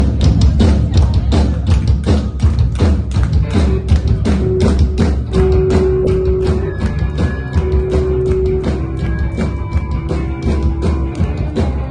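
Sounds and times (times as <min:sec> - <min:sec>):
drum kit beating steady rhythm: 0:00.0 - 0:11.9
heavy bass line: 0:03.1 - 0:11.9
band music: 0:03.2 - 0:11.9.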